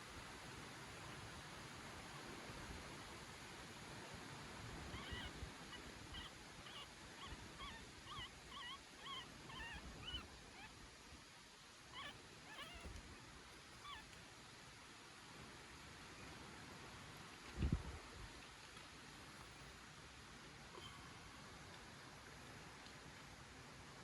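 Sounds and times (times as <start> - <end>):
puppy squeaking: 4.9 - 5.3, 6.1 - 10.7, 11.9 - 12.9, 13.8 - 14.1.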